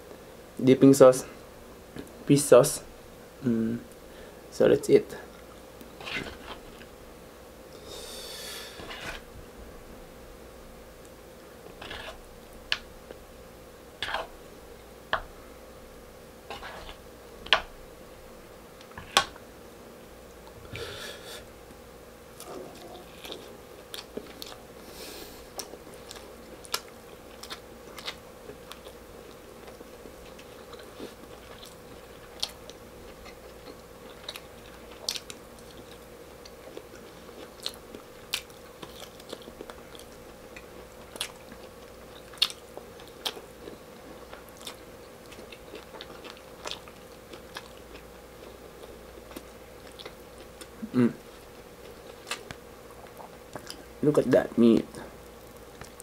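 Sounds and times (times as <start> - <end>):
faint steady hum: 0.0 - 56.0
wet chewing: 25.5 - 50.8, 51.4 - 53.9.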